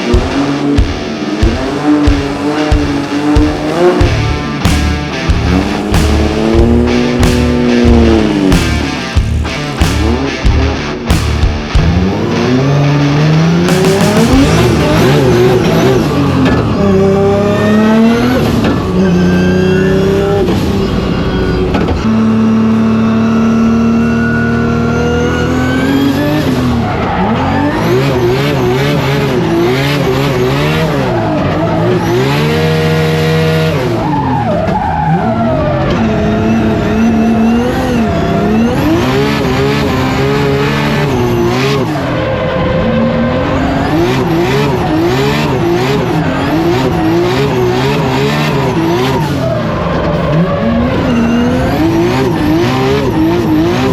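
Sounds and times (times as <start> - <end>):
car engine revving: 0.0 - 53.9
tyre squeal: 13.7 - 53.9.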